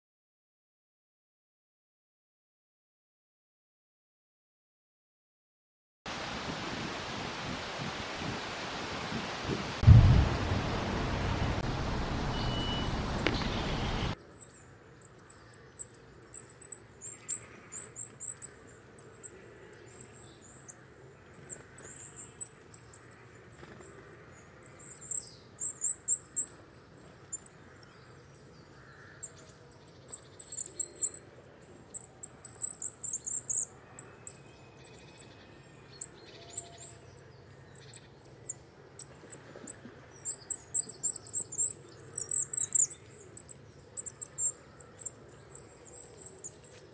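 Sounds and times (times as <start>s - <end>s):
high-pitched bird calls: 12.3s - 14.2s.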